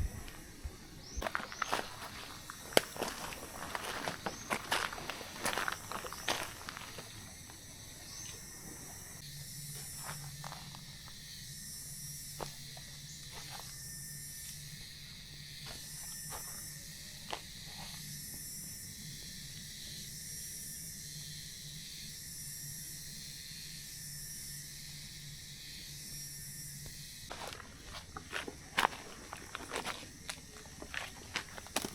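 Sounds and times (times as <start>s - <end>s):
insects buzzing: 0.0s - 31.9s.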